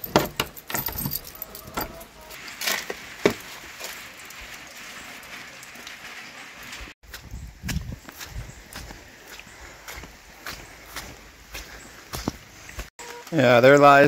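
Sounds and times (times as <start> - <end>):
rain falling: 0.9 - 7.0.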